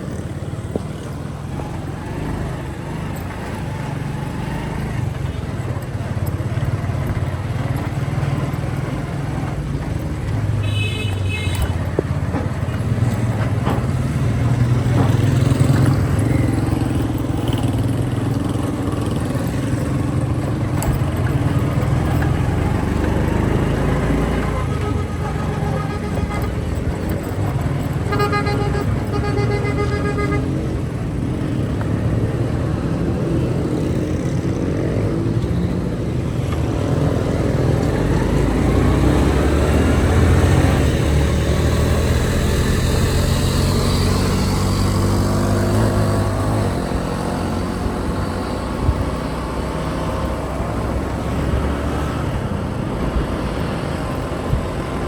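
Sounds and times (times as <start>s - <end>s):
motorcycle engine revving: 0.0s - 55.0s
vehicle horn: 10.6s - 11.9s, 23.2s - 30.9s, 39.6s - 46.8s.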